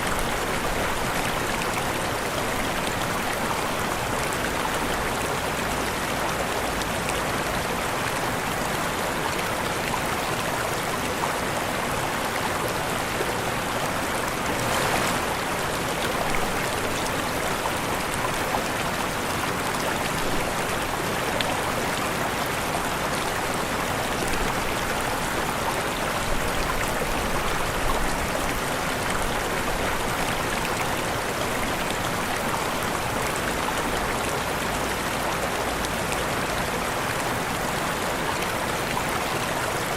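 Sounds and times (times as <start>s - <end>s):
waterfall rushing: 11.7s - 34.8s.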